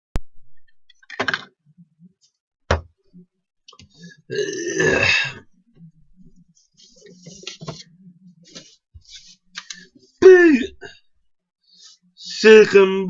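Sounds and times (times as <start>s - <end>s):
loud rough vocal sound: 4.3s - 5.5s, 10.2s - 11.0s.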